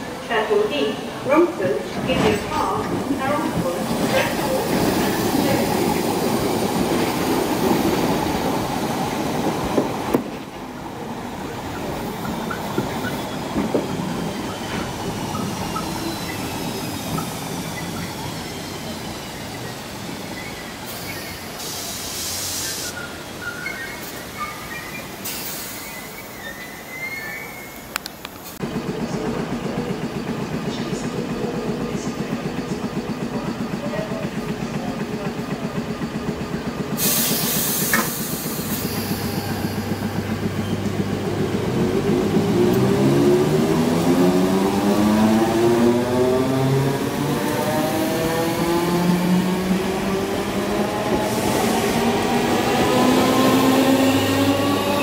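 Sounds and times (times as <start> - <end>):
rumble of wheels on rail: 0.0 - 55.0
train air hiss with squeals: 12.5 - 27.9, 36.5 - 40.8.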